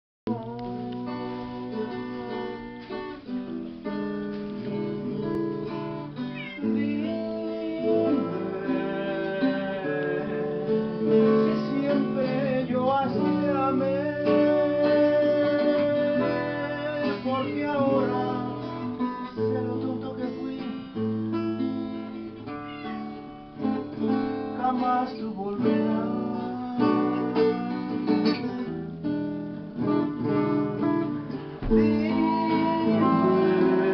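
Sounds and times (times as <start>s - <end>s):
acoustic guitar strumming: 0.3s - 33.9s.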